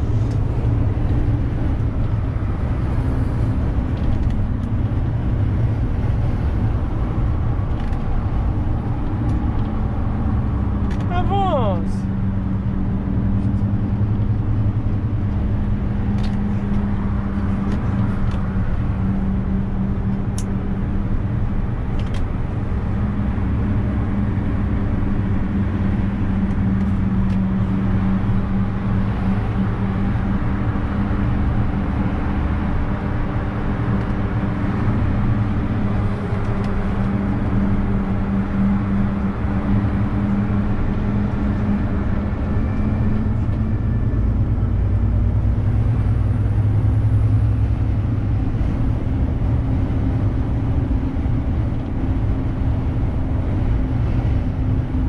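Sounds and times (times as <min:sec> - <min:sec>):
truck engine droning: 0:00.0 - 0:55.0.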